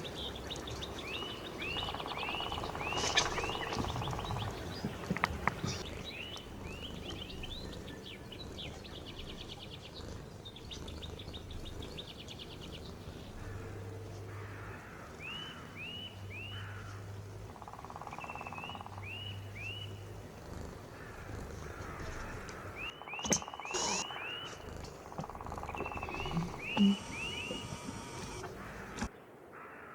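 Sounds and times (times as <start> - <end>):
small birds chirping: 0.0 - 29.1
steady low hum: 23.7 - 29.1.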